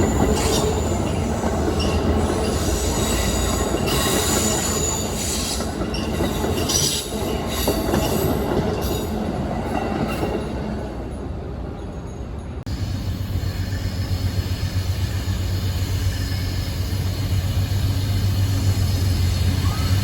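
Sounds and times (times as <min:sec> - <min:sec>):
train wheels squealing: 0:00.0 - 0:10.4, 0:11.8 - 0:20.0
train rumbling past: 0:00.0 - 0:20.0.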